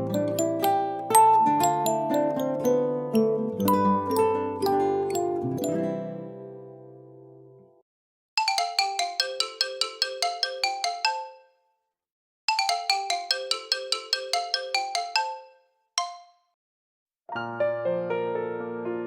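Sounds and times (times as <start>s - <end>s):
phone ringtone melody: 0.0s - 5.9s, 8.4s - 11.6s, 12.5s - 16.4s.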